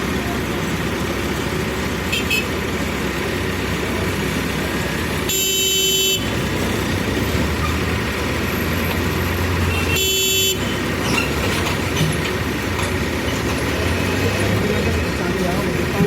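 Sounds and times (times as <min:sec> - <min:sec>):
engine and road traffic noise: 0:00.0 - 0:16.0
vehicle horn honking: 0:02.1 - 0:02.5, 0:05.3 - 0:06.4, 0:09.7 - 0:10.8.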